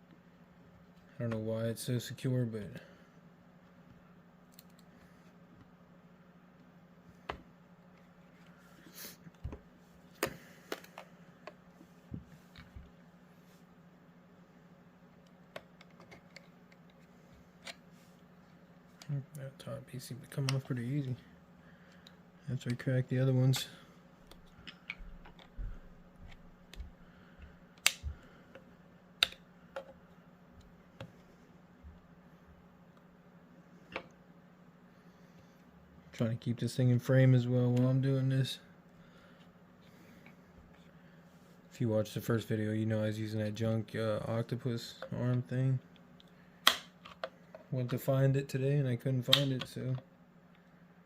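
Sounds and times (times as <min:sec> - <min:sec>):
plastic clicks and snaps: 0:29.2 - 0:29.4.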